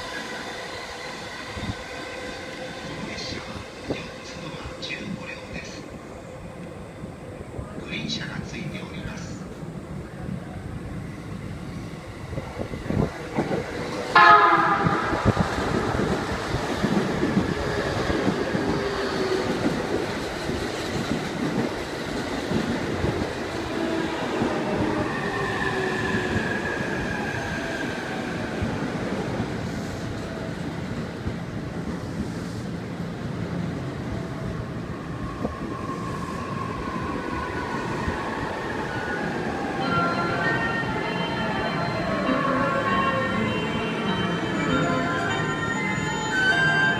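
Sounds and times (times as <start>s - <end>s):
train wheels rumbling on rails: 7.6s - 39.8s.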